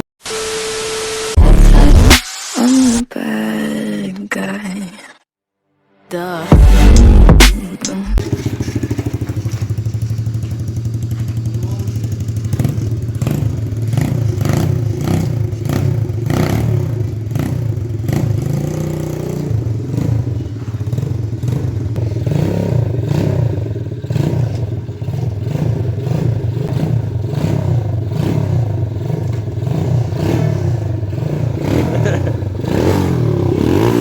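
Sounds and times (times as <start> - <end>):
dirt bike engine revving: 8.2 - 34.0.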